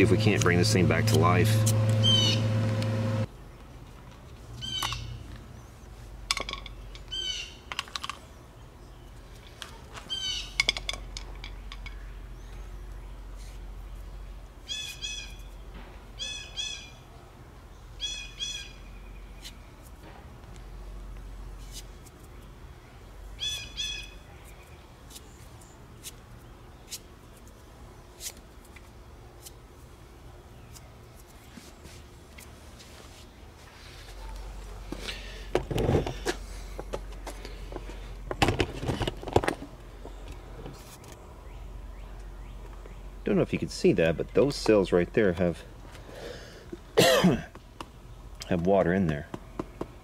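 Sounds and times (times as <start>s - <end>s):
bird chirping: 1.9s - 2.6s.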